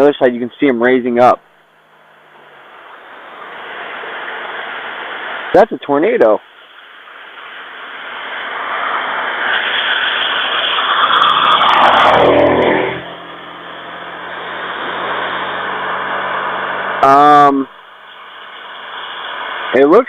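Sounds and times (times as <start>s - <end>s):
vehicle passing by: 2.4s - 20.0s.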